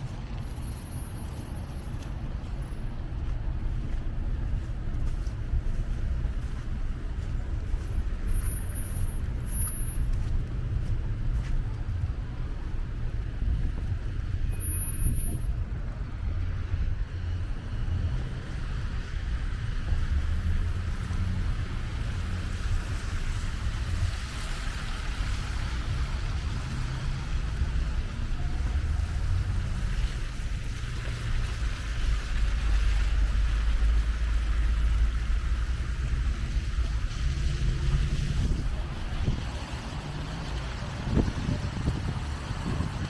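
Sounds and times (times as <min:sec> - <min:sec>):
street traffic noise: 0:00.0 - 0:43.0
wind buffeting microphone: 0:09.2 - 0:43.0.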